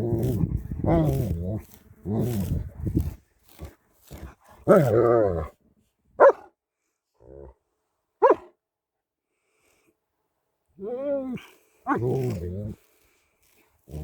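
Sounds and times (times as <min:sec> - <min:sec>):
dog barking: 0:06.2 - 0:06.5, 0:08.2 - 0:08.5.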